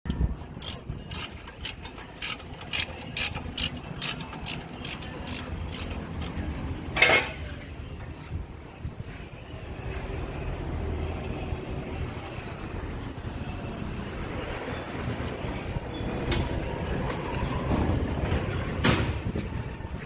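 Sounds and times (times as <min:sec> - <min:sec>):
ratchet mechanism clicking: 0:00.1 - 0:06.4.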